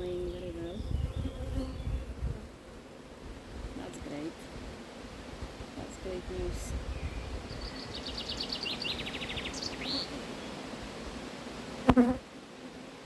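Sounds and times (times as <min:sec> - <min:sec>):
songbird trilling: 0:00.0 - 0:02.1, 0:06.9 - 0:10.5
honeybees humming: 0:00.0 - 0:13.0.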